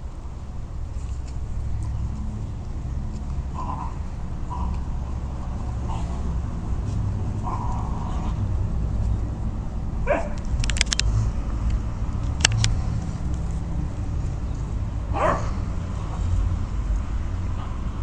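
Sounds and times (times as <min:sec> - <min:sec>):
steady low rumble: 0:00.0 - 0:18.0
puppy yelping: 0:10.1 - 0:10.4
sharp clicks: 0:10.4 - 0:13.4.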